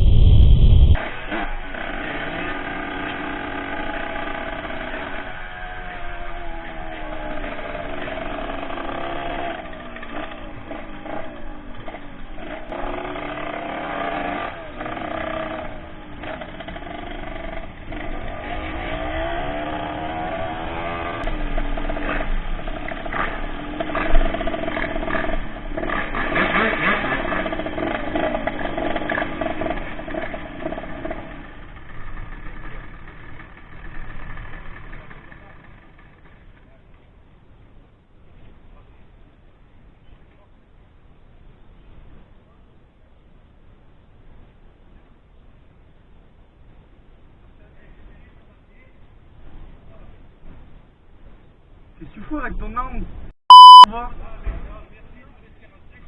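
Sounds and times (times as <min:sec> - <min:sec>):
motorcycle engine revving: 0:00.0 - 0:36.4.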